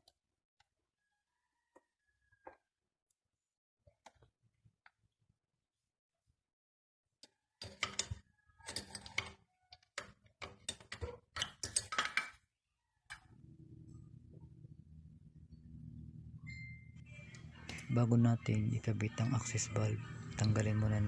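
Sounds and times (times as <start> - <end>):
low steady hum: 13.4 - 21.0.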